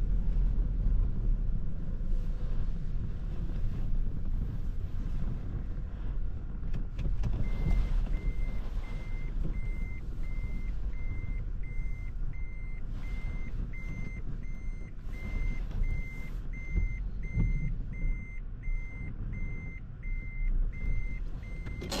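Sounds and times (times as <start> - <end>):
low car rumble: 0.0 - 22.0
reverse warning beep: 7.4 - 22.0.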